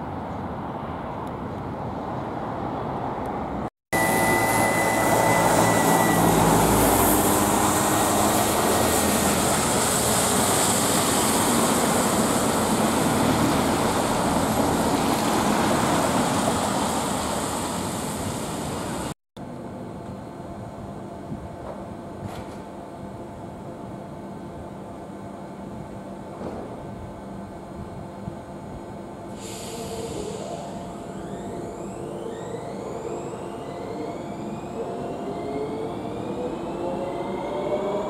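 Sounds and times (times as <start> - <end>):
electric train passing: 0.1 - 19.1, 29.1 - 38.0
high motor whine: 3.9 - 15.0.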